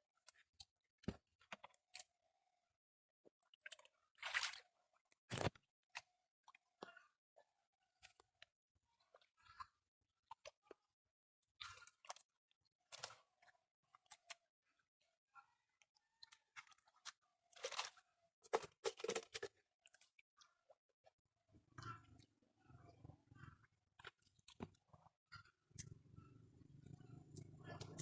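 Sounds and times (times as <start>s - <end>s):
small water splashes: 3.6s - 4.8s
squelches in mud: 21.6s - 28.0s.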